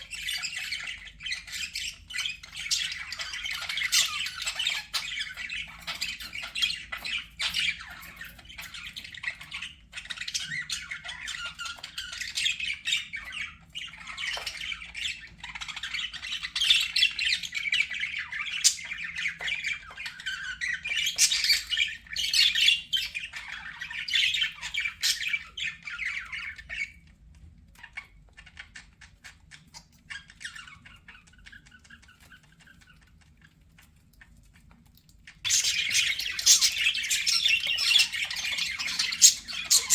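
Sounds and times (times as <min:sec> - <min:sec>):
budgerigars chattering: 0:00.0 - 0:27.0, 0:35.5 - 0:39.9.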